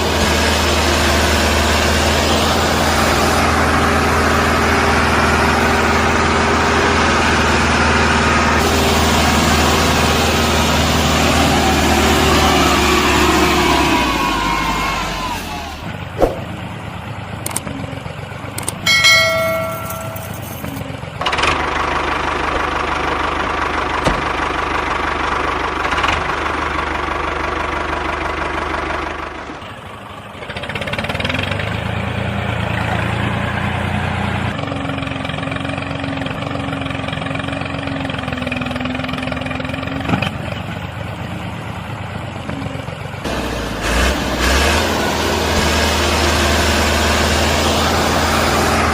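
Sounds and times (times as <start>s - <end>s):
short pitched tone: 18.9s - 20.6s.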